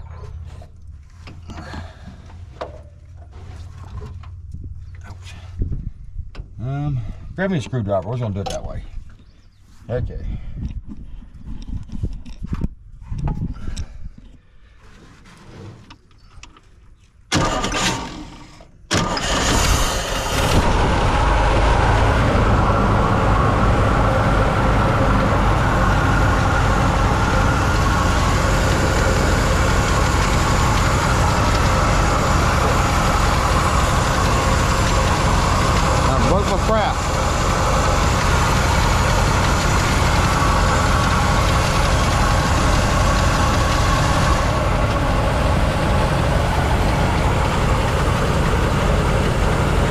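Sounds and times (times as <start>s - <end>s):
truck engine cranking and starting: 17.3s - 49.9s.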